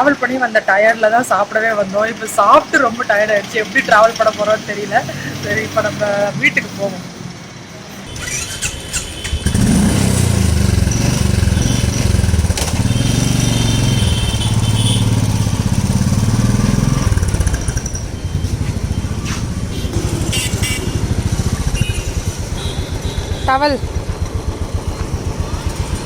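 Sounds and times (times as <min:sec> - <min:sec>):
motorcycle engine running: 0:08.1 - 0:26.0.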